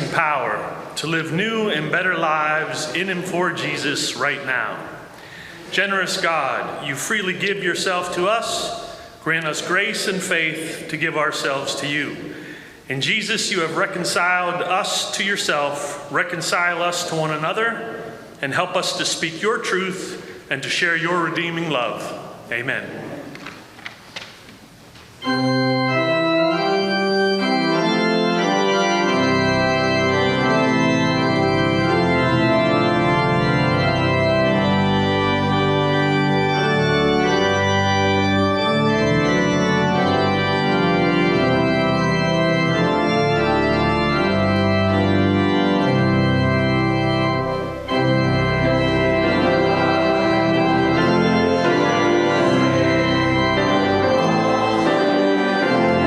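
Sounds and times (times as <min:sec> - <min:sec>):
church organ playing chords: 0:00.0 - 0:22.9, 0:25.2 - 0:56.0.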